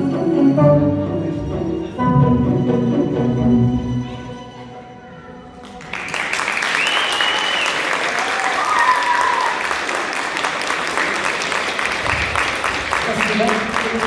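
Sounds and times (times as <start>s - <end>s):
audience applause: 5.6s - 14.0s
audience cheering: 6.2s - 10.1s.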